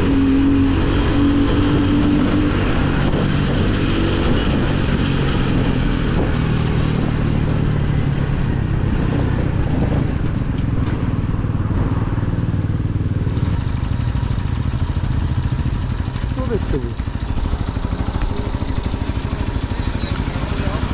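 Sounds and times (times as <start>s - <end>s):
wind noise on microphone: 0.0s - 13.6s
motorcycle engine running: 0.0s - 20.9s.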